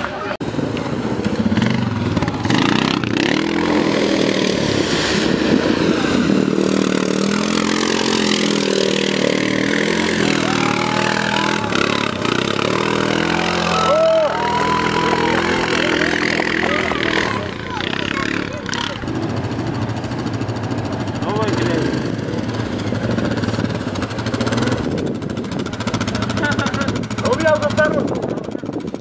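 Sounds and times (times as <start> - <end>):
atv engines revving: 0.0 - 29.0.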